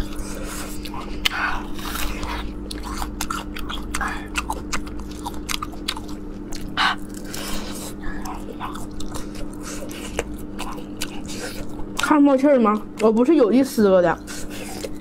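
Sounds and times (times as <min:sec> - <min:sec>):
person chewing wetly: 0:00.0 - 0:15.0
steady low hum: 0:00.0 - 0:15.0.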